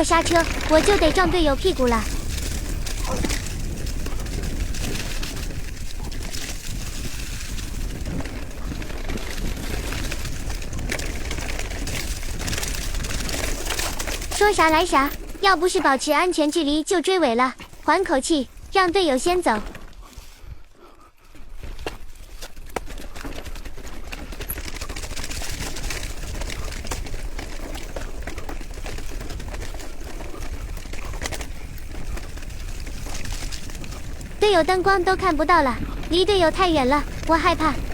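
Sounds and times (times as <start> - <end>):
wind buffeting microphone: 0.0 - 15.6, 25.1 - 37.9
bicycle rattling over rough road: 0.0 - 37.9
small clicks and knocks from bike: 2.0 - 14.5, 21.2 - 34.4.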